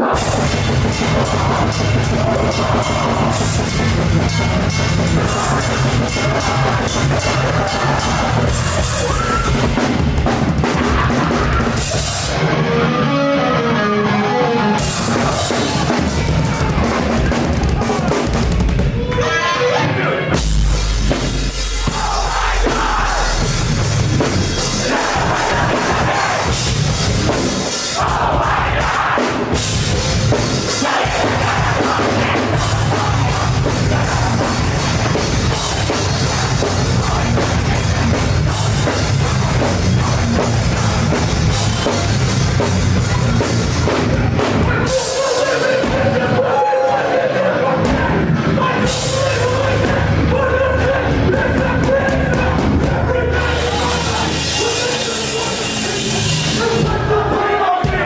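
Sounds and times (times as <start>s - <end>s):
pounding drum kit: 0.0s - 12.7s, 14.6s - 19.3s, 20.0s - 58.0s
heavy low drop: 0.0s - 12.8s, 20.3s - 28.8s, 29.5s - 44.9s
live rock band playing: 0.0s - 19.2s, 19.8s - 46.4s, 48.1s - 58.0s.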